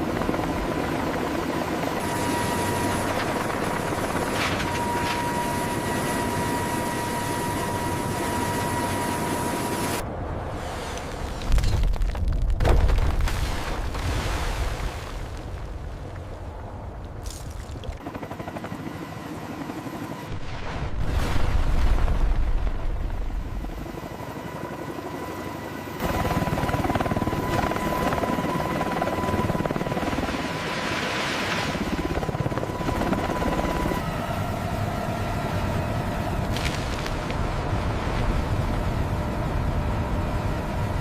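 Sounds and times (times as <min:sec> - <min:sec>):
helicopter rotor and engine drone: 0:00.0 - 0:12.0, 0:16.6 - 0:20.6, 0:22.1 - 0:41.0
thin steady whine: 0:01.6 - 0:10.1.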